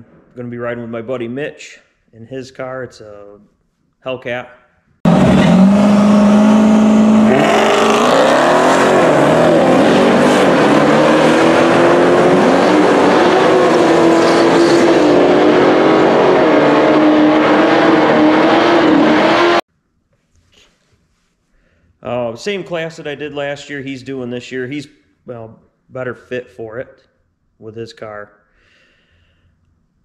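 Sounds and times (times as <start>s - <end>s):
car engine revving and accelerating: 5.1s - 19.6s.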